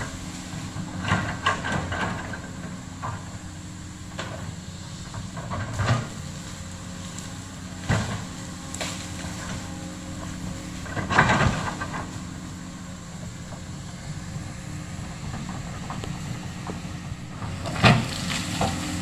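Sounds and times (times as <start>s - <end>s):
diesel engine running: 0.0s - 19.0s
sharp cracks and knocks: 7.0s - 9.6s.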